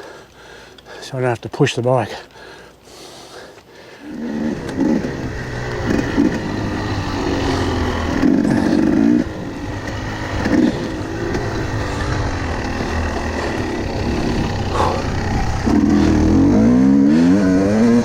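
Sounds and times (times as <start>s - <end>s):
motorbike engine revving: 4.0s - 18.0s.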